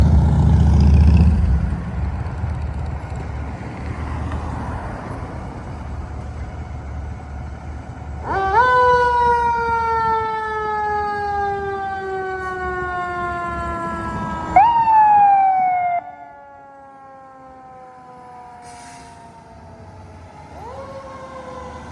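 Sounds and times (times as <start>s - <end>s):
fire engine rumble: 0.0s - 21.9s
siren wailing: 8.2s - 21.9s.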